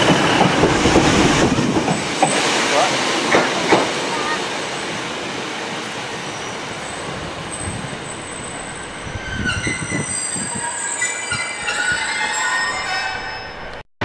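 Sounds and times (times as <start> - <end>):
diesel train rumbling: 0.0 - 13.8
high wheel squeal: 6.2 - 13.8.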